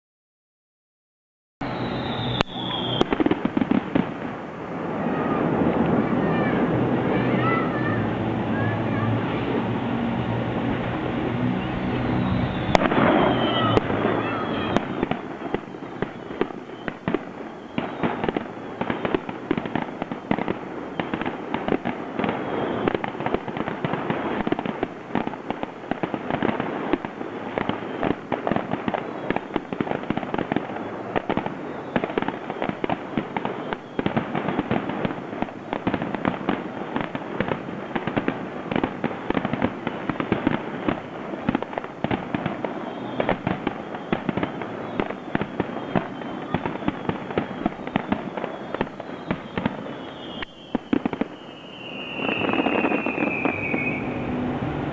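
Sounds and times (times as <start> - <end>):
fireworks bursting: 1.6 - 54.9.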